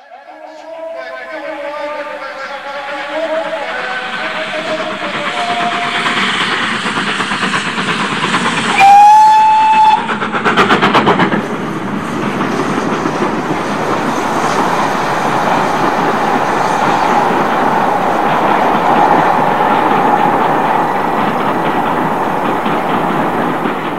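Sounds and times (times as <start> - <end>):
train horn blast: 8.8 - 10.1.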